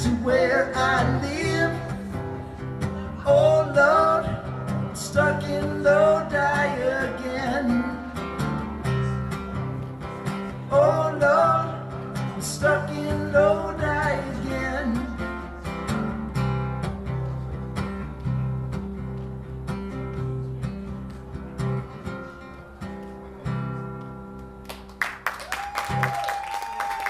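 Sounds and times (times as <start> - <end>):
acoustic guitar strumming: 0.0 - 24.6
audience clapping: 24.6 - 27.0.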